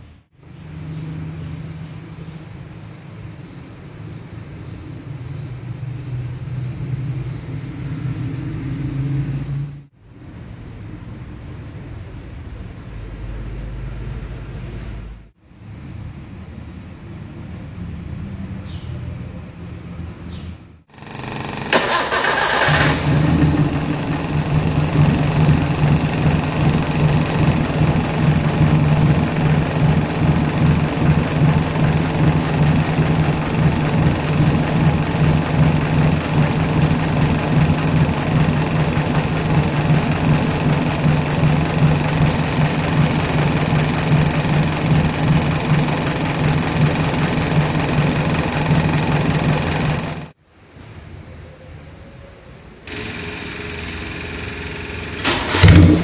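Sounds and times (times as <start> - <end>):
car engine idling: 20.9 - 50.4, 52.9 - 56.0.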